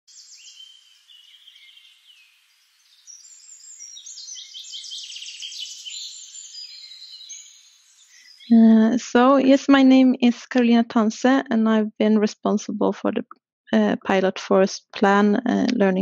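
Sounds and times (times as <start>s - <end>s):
bird trill: 0.1s - 8.6s
birds singing: 0.1s - 8.8s.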